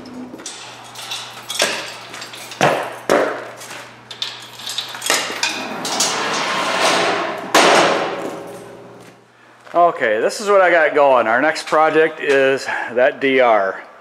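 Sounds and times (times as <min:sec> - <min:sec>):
sharp knocks and metallic clanks: 0:00.4 - 0:03.5, 0:04.1 - 0:09.0.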